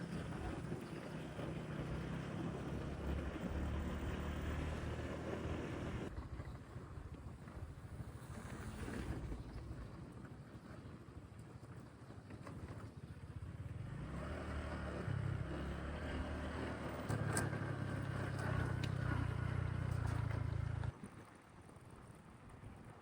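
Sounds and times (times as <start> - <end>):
motorbike engine humming: 0.0 - 6.1, 13.4 - 20.9
road noise: 0.0 - 6.2, 13.4 - 21.0.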